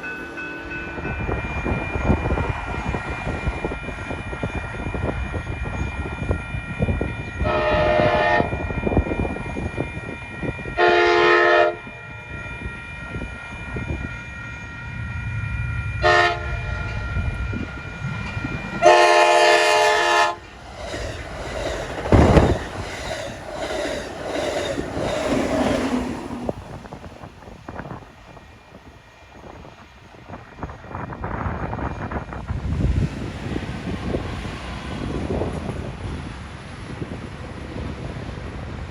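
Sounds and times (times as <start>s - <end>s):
locomotive horn blasts: 7.4s - 8.6s, 10.8s - 11.9s, 16.0s - 16.6s, 18.8s - 20.4s.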